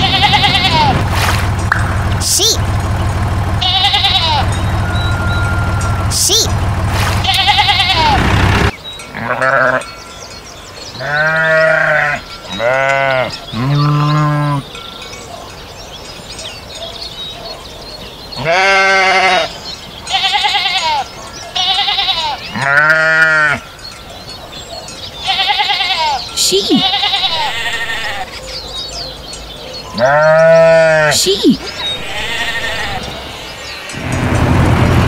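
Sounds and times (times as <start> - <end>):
sheep bleating: 0.0 - 1.0, 3.6 - 6.5, 7.2 - 8.2, 9.1 - 9.9, 11.0 - 14.7, 18.4 - 19.5, 20.1 - 23.7, 25.2 - 28.4, 29.9 - 34.0
low hum: 0.0 - 8.7, 34.0 - 35.0.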